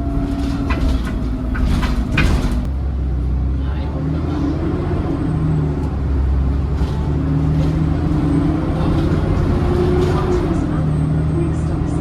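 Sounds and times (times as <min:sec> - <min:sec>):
bus engine droning with whine: 0:00.0 - 0:12.0.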